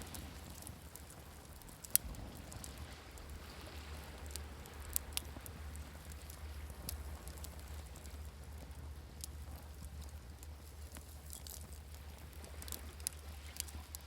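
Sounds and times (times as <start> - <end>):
waves washing: 0.0 - 7.7
campfire crackling and popping: 0.0 - 14.0.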